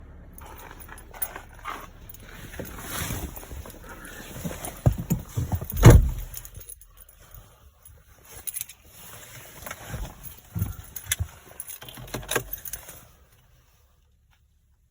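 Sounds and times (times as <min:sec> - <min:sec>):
diesel engine cranking: 0:00.0 - 0:07.2, 0:09.4 - 0:13.1
keys jangling: 0:00.4 - 0:07.5, 0:09.6 - 0:13.0.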